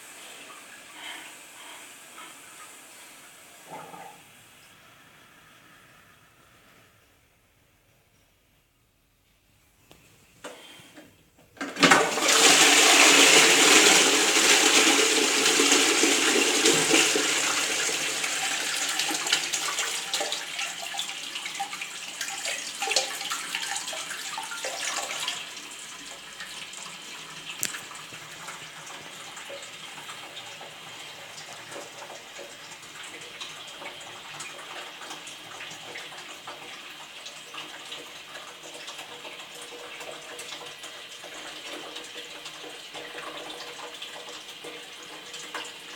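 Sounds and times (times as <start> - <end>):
toilet flushing: 0.0 - 6.8, 11.6 - 45.9
water running steadily: 11.9 - 45.9.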